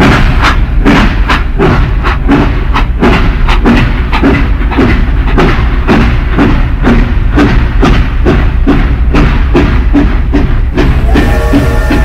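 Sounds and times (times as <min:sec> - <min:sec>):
toy train chugging: 0:08.9 - 0:12.0.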